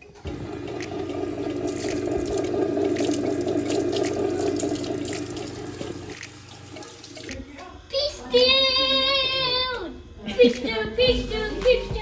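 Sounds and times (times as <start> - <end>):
tap water running into sink: 0.2 - 7.4.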